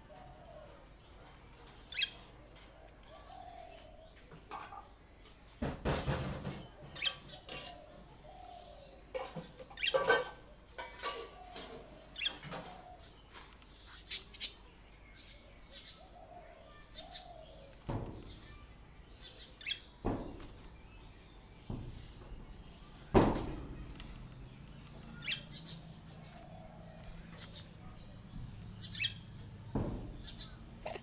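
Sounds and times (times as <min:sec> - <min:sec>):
bird chirping: 0:01.8 - 0:02.3, 0:11.1 - 0:23.2, 0:23.8 - 0:31.0.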